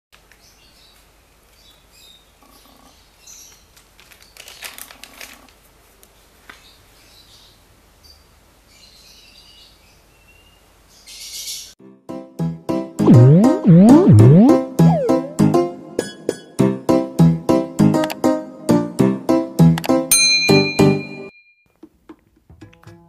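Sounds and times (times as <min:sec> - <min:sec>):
crinkling rustles: 0:03.5 - 0:06.7.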